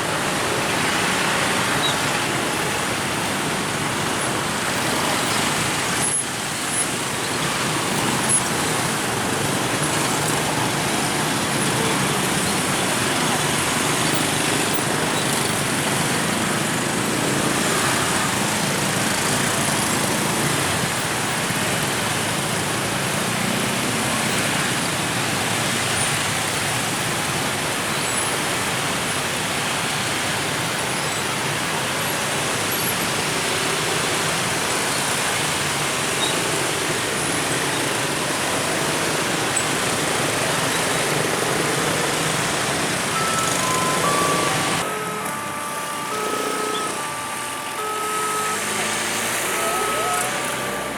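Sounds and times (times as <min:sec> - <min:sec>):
road traffic engines and tyres: 0:00.0 - 0:50.9
short high beeps: 0:43.1 - 0:50.9.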